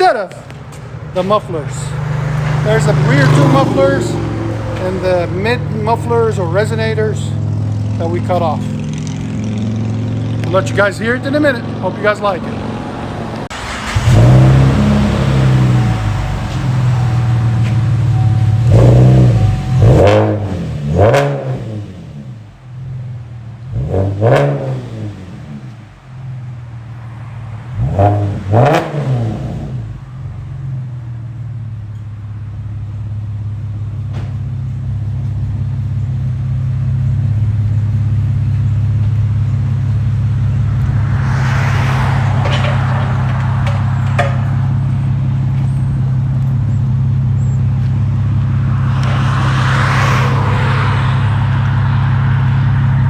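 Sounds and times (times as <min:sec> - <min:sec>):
car engine rev and idle: 0:00.0 - 0:53.0
rushing noise: 0:40.2 - 0:46.3, 0:48.0 - 0:53.0.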